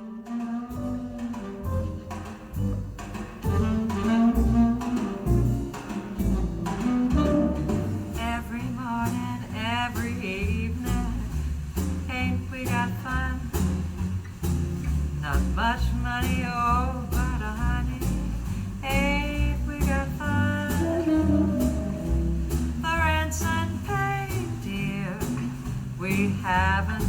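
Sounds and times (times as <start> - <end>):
double bass low notes: 0.0 - 27.0
swing jazz over speakers: 0.0 - 27.0.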